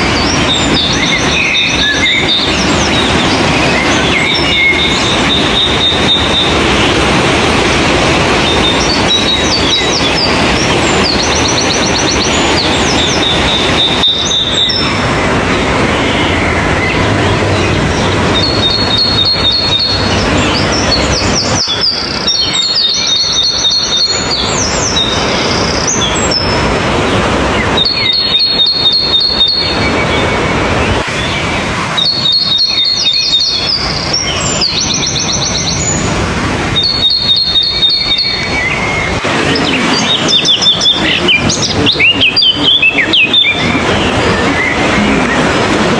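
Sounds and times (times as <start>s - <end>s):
songbird trilling: 0.0s - 7.1s, 8.3s - 15.2s, 15.9s - 26.6s, 27.5s - 30.3s, 31.2s - 36.0s, 36.8s - 44.8s
loud steady rushing noise: 0.0s - 45.9s.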